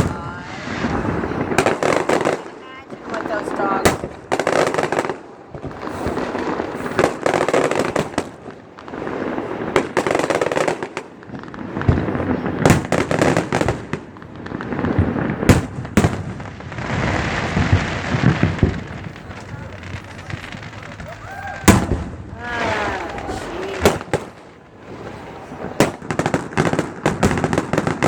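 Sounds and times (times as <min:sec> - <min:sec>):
firework crackling: 0:00.0 - 0:28.0
firework shells bursting: 0:00.0 - 0:28.0.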